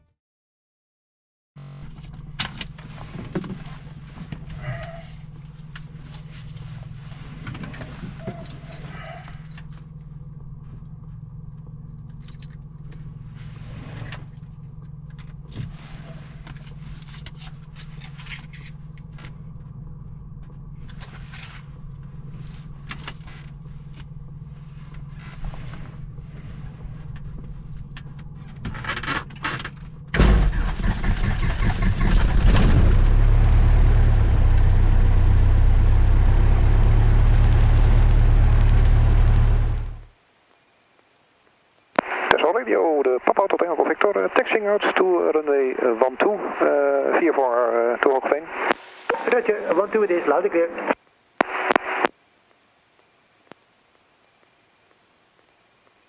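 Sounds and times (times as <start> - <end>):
piston aircraft engine running: 1.6 - 40.1
steady low hum: 1.6 - 56.0
keys jangling: 8.3 - 9.8, 12.0 - 13.1
clicks: 37.1 - 40.1, 51.4 - 52.1.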